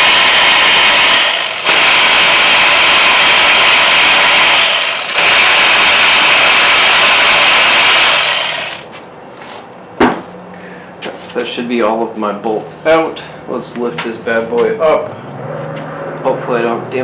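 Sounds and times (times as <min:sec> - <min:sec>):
power tool running: 0:00.0 - 0:08.9.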